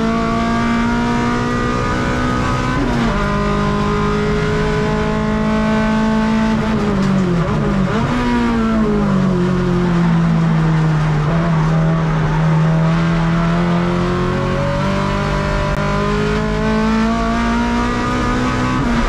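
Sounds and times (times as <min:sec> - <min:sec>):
race car engine running hard: 0:00.0 - 0:19.0.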